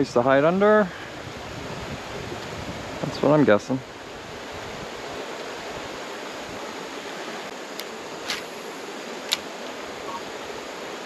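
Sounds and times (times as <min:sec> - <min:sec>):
creek water rushing: 0:00.1 - 0:11.0.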